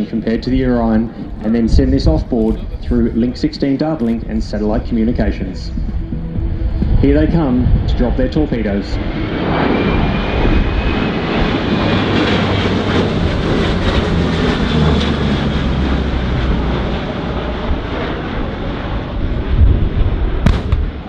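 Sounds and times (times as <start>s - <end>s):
aircraft engines passing overhead: 0.0s - 21.0s.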